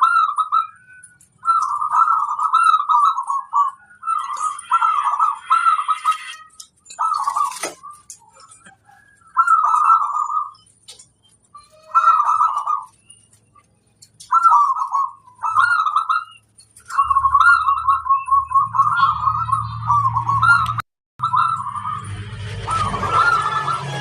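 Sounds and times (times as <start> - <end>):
dove cooing: 0.0 - 22.0
low hum: 16.8 - 24.0.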